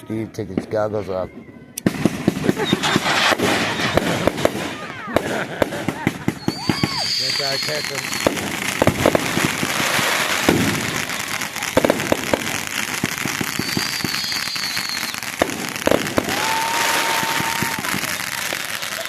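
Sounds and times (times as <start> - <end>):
fireworks crackling and banging: 0.0 - 19.0
high firework whistle: 2.4 - 5.4, 6.2 - 19.0
low whistling tone: 6.4 - 8.3, 13.6 - 15.3.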